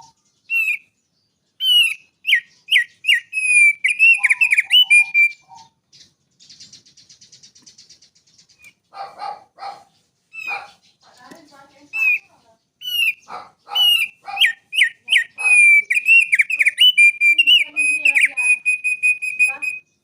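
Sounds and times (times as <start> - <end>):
songbird whistling: 0.0 - 1.0, 1.6 - 8.8, 10.3 - 10.8, 11.8 - 20.0
bird dry rapid trill: 6.4 - 19.9.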